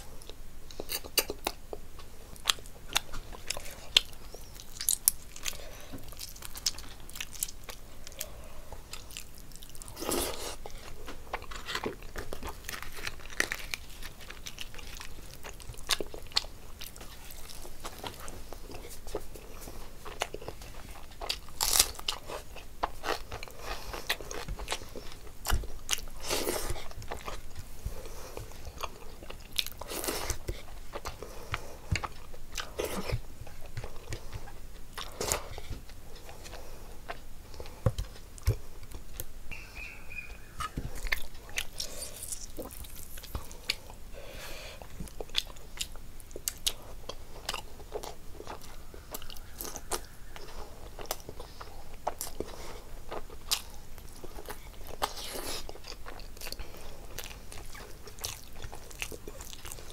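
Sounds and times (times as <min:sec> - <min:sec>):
chewing with mouth clicks: 0:00.2 - 0:44.0, 0:44.8 - 0:59.9.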